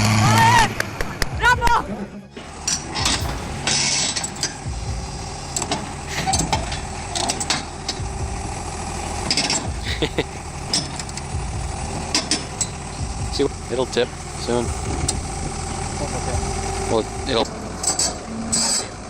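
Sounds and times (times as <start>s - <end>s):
heavy vehicle engine running: 2.3s - 19.0s.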